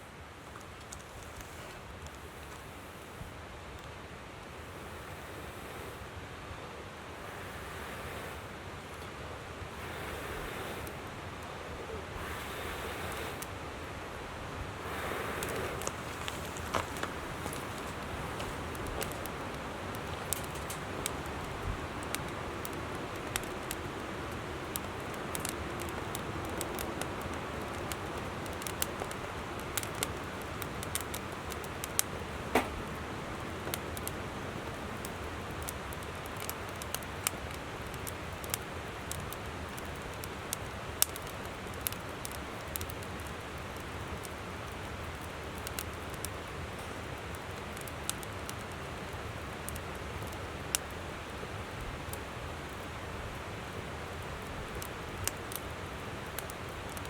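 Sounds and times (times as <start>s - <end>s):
river flowing: 0.0s - 35.9s
campfire crackling and popping: 0.1s - 57.0s.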